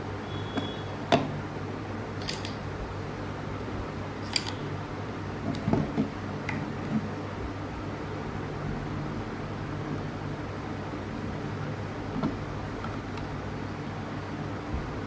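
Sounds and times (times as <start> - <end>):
steady low hum: 0.0 - 15.0
small parts clicking and knocking: 2.2 - 2.6, 4.2 - 4.6.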